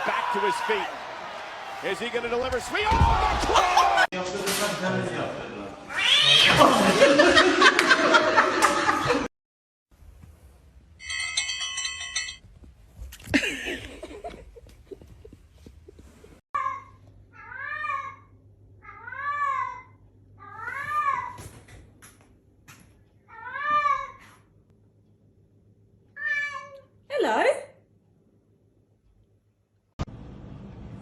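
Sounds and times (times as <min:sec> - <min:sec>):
cat meowing: 0:05.9 - 0:06.6, 0:26.2 - 0:26.9.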